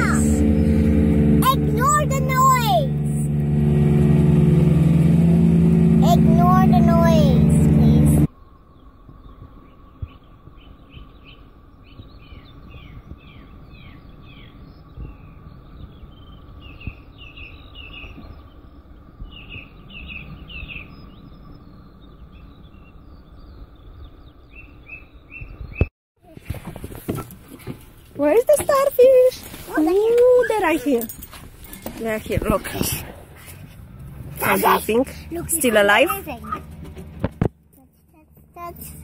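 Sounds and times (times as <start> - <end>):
low background rumble: 0.0 - 26.4
small birds chirping: 7.8 - 25.9.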